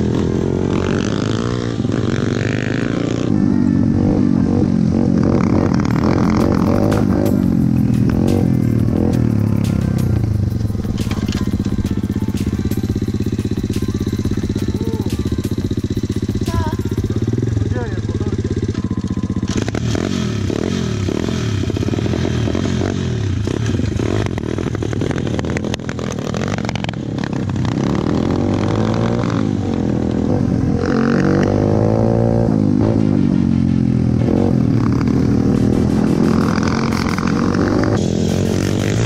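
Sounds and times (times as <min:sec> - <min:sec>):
motorbike engines revving: 0:00.0 - 0:39.0
chassis rattling over bumps: 0:05.1 - 0:19.9, 0:33.0 - 0:39.0.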